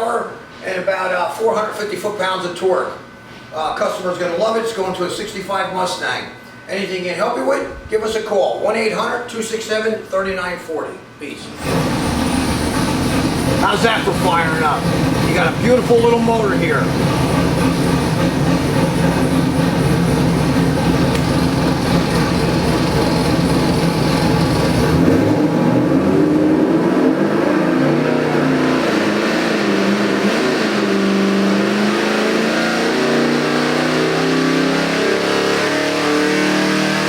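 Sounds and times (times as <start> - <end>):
car engine revving: 11.6 - 37.0.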